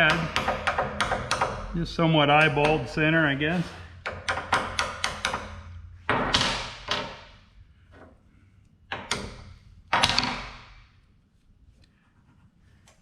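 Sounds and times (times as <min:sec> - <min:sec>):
sharp metal clanks and knocks: 0:00.0 - 0:07.5.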